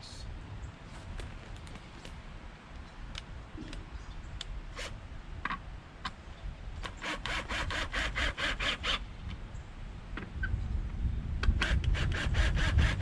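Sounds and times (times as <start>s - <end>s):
hand tool scraping wood: 6.8s - 9.0s.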